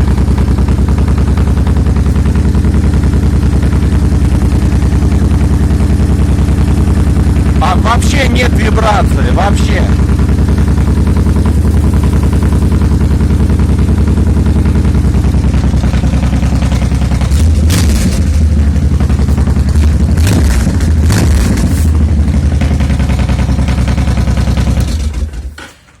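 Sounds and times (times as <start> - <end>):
motorcycle engine running: 0.0 - 25.7.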